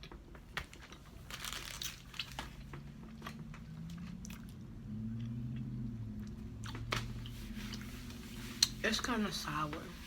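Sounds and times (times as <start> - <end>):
person chewing food: 0.0 - 7.9.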